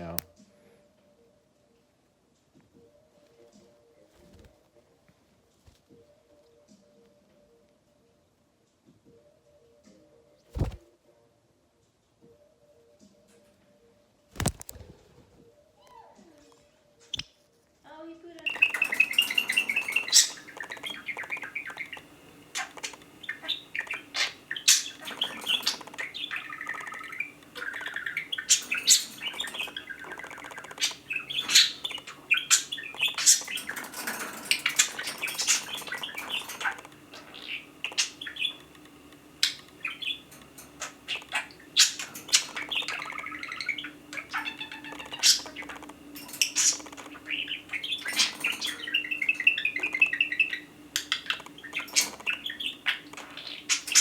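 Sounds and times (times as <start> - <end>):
budgerigars chirping: 18.4 - 54.0.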